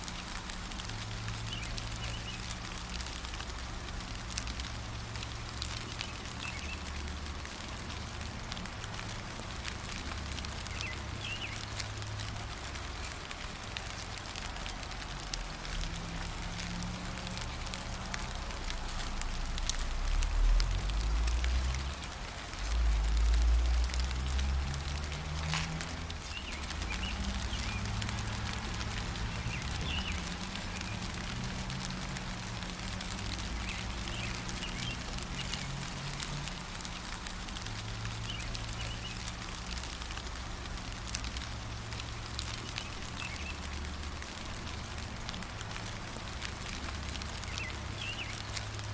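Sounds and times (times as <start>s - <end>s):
gentle rain pattering: 0.0s - 48.9s.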